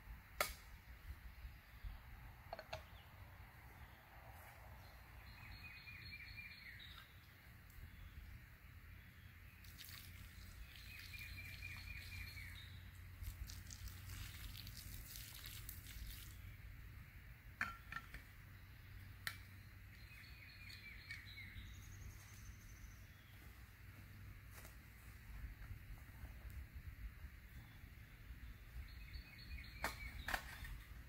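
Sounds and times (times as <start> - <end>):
high bird calls: 9.0 - 12.9.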